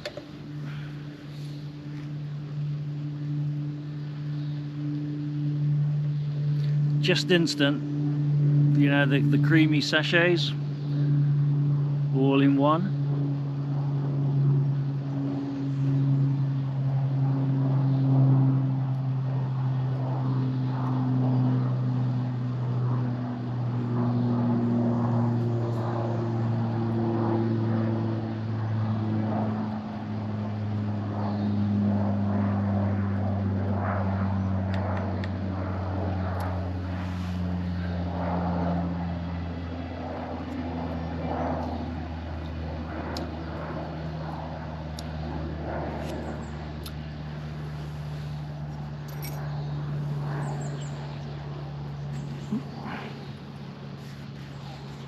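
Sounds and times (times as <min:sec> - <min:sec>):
propeller aircraft droning overhead: 0:00.0 - 0:55.0.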